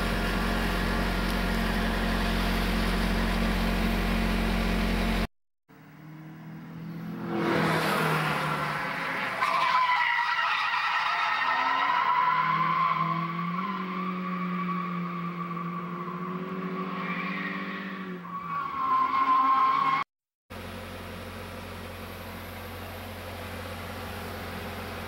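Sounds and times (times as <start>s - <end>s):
steady engine hum: 0.0s - 9.4s, 20.5s - 25.0s.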